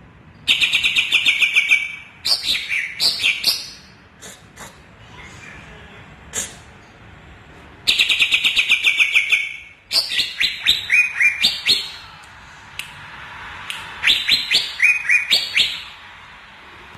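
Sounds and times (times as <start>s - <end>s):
bird singing rapid chirps: 0.5s - 4.0s, 7.9s - 12.0s, 14.0s - 16.0s.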